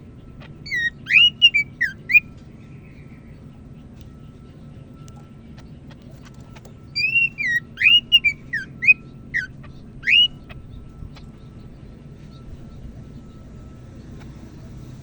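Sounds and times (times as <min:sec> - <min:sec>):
bird whistling: 0:00.4 - 0:03.2, 0:06.5 - 0:11.6.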